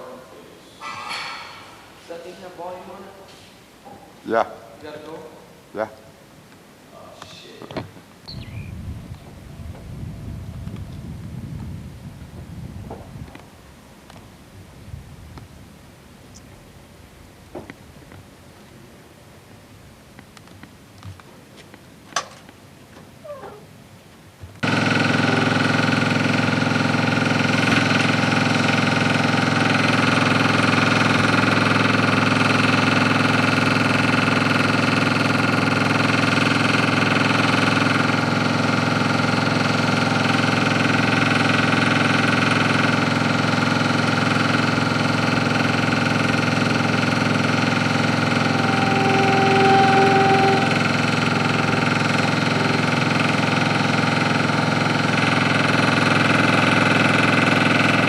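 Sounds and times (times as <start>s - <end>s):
machine engine droning: 24.6s - 58.0s
brief higher tone: 47.7s - 54.6s.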